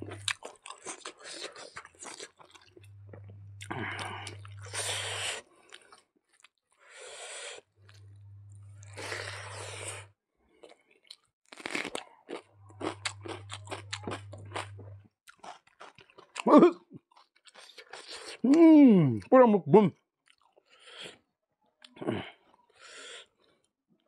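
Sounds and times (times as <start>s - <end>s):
crunching and chewing: 0.0s - 6.9s, 7.8s - 18.5s, 20.2s - 20.8s.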